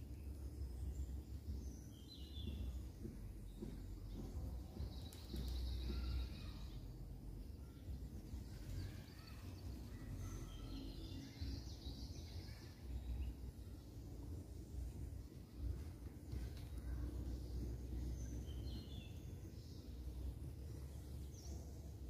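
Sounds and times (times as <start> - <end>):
low outdoor rumble: 0.0 - 22.0
faint bird chirps: 3.5 - 14.2.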